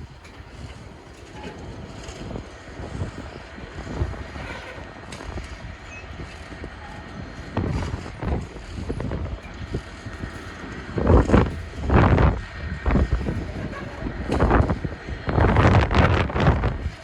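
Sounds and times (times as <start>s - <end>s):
train rumbling: 0.0s - 17.0s
wind buffeting microphone: 0.0s - 17.0s.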